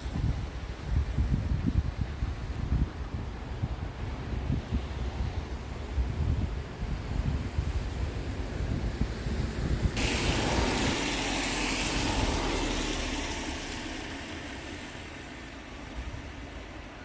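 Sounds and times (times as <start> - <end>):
low rumble: 9.9 - 16.8
steam locomotive hissing: 9.9 - 17.0.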